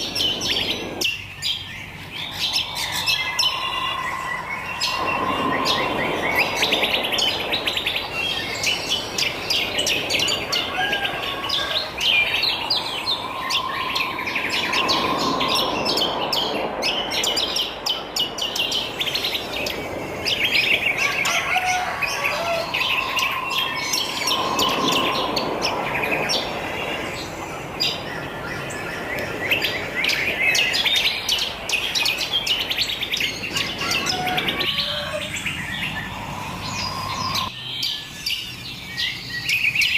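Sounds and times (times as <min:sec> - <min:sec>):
birds chirping and twittering: 0:00.0 - 0:39.9
lower held bird note: 0:02.3 - 0:07.5.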